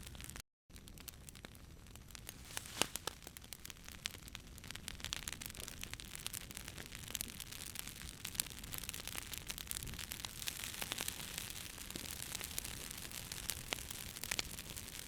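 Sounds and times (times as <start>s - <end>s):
campfire crackling and popping: 0.0s - 15.0s
fire hissing: 2.2s - 3.4s.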